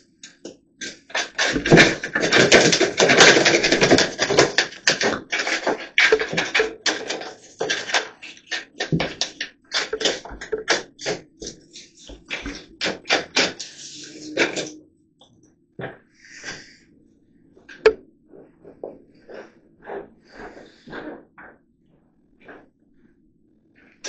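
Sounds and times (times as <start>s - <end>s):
hand tool scraping plaster: 0.2s - 14.8s.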